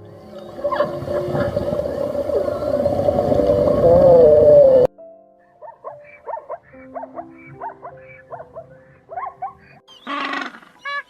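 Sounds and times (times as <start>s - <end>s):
background music: 0.0s - 11.0s
harsh animal call: 10.0s - 11.0s.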